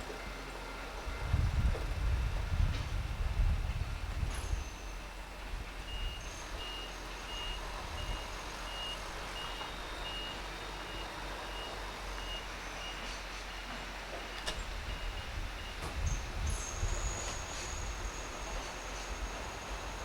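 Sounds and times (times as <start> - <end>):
low steady rumble: 0.0 - 12.9
high electronic warning beeps: 5.9 - 20.0.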